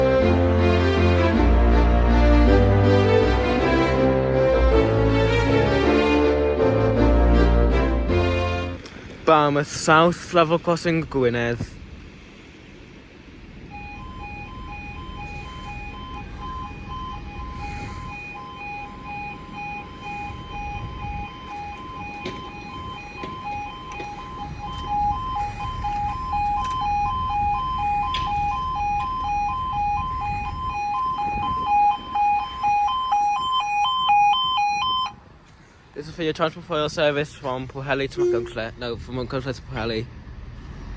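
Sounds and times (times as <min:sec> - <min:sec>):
two-tone crossing alarm: 0:13.6 - 0:35.2, 0:38.1 - 0:38.8.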